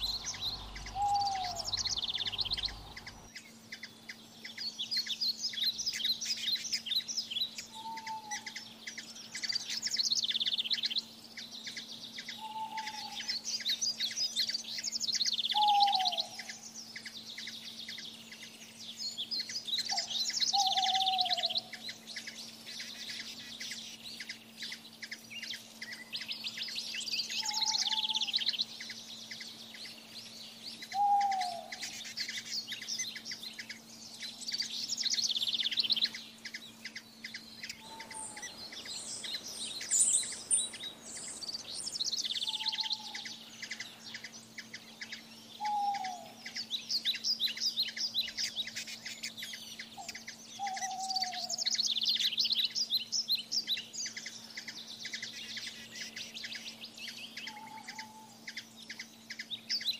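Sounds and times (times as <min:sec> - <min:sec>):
lower falling bird call: 0:00.0 - 0:03.3, 0:30.8 - 0:32.5, 0:37.3 - 0:43.9
birds chirping and trilling: 0:00.0 - 0:59.9.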